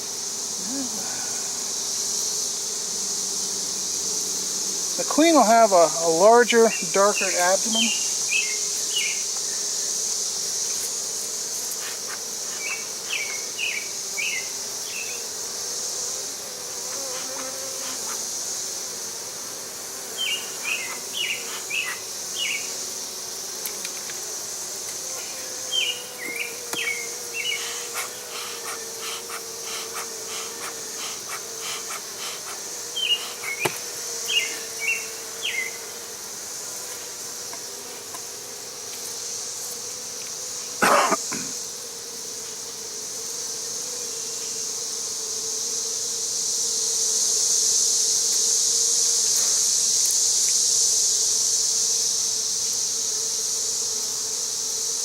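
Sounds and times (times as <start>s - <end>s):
high-pitched insect drone: 0.0s - 4.0s, 4.7s - 18.8s, 20.0s - 23.0s, 24.9s - 37.0s
honey bees buzzing: 0.0s - 55.0s.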